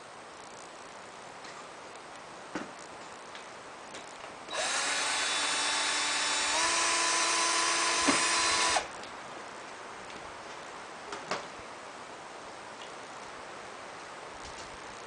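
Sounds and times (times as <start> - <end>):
power screw gun driving screw: 4.5 - 8.9.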